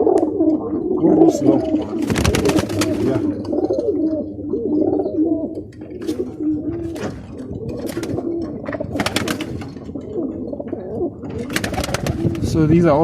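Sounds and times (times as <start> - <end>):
pigeons cooing: 0.0 - 13.0
sharp taps or wing flaps: 2.0 - 3.2, 7.0 - 9.8, 11.4 - 12.5.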